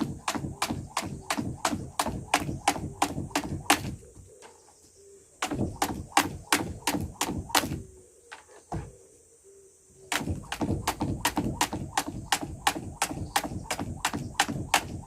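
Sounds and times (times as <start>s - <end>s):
jump rope slapping ground: 0.0s - 4.0s, 5.4s - 7.8s, 10.1s - 15.0s.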